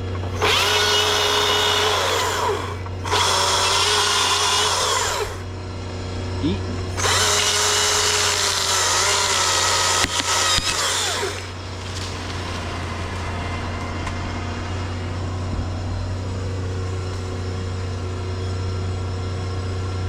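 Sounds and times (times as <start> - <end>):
chainsaw cutting wood: 0.0 - 5.6, 6.2 - 18.1
low engine hum: 0.0 - 20.0
wood cracking: 7.0 - 15.8.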